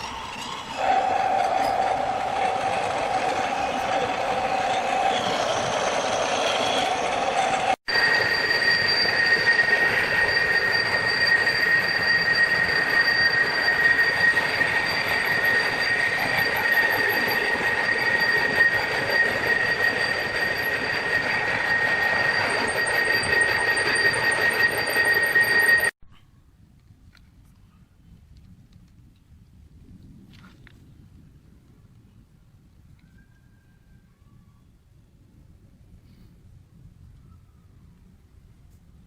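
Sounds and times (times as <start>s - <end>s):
rush of steam: 0.0s - 25.8s
constant high whistle: 0.0s - 26.0s, 31.7s - 39.0s.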